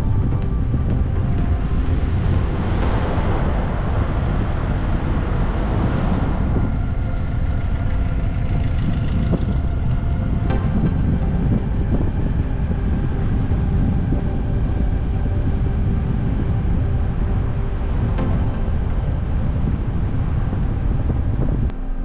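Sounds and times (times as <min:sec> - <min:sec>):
vehicle road rumble: 0:00.0 - 0:22.0.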